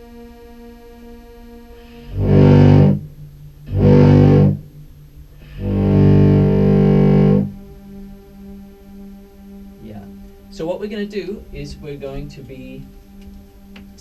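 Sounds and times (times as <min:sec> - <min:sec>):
clarinet held tone: 0:01.8 - 0:04.7, 0:05.4 - 0:12.9
loud distorted low notes: 0:02.0 - 0:07.8.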